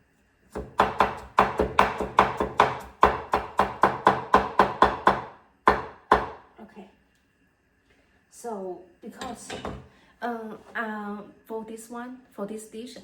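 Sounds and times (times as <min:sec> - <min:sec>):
knife chopping on wooden board: 0:00.5 - 0:06.4.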